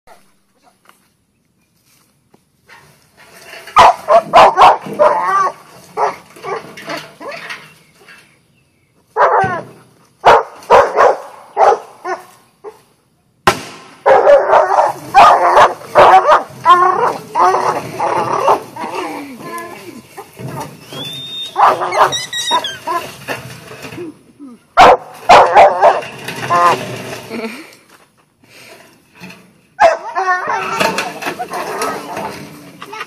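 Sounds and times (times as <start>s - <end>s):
dog barking and yelping: 3.8s - 7.4s, 9.2s - 9.6s, 10.2s - 12.8s, 14.0s - 19.0s, 21.5s - 23.1s, 24.8s - 26.1s, 29.8s - 30.8s
dog whining: 21.0s - 23.1s.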